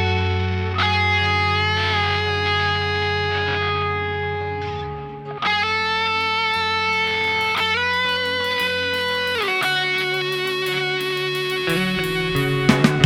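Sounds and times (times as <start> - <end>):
electric lead guitar sustained notes: 0.0 - 13.0
low bass notes: 0.0 - 13.0
drum hits: 6.9 - 13.0.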